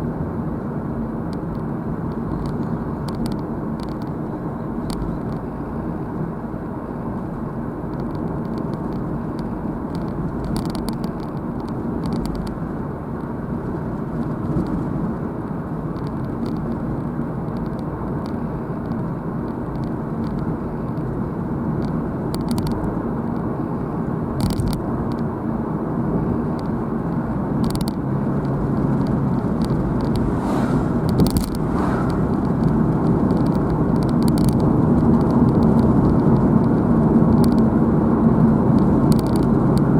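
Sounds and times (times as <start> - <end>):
car engine and tyre noise: 0.0 - 39.9
faint clicks: 26.5 - 37.7, 38.8 - 39.9.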